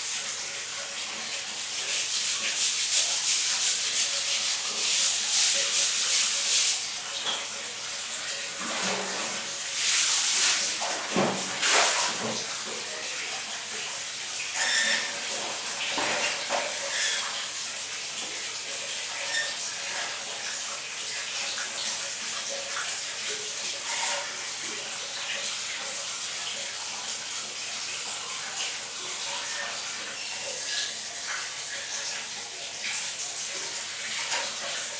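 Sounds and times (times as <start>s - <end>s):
water running and splashing: 0.0s - 34.9s.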